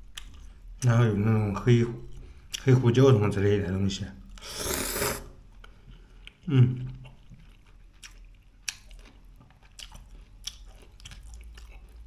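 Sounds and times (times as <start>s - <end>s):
person chewing: 0.0s - 0.6s, 4.3s - 12.0s.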